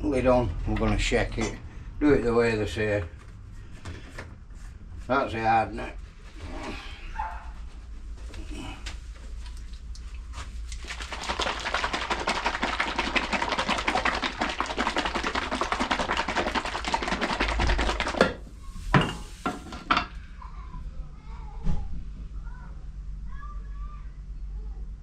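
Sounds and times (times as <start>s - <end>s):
bottle rattling and sloshing: 9.3s - 19.8s.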